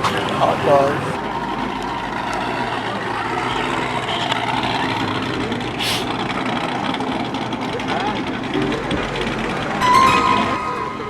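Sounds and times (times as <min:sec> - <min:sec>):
car engines running: 0:00.0 - 0:11.0
brief hiss: 0:05.8 - 0:06.1.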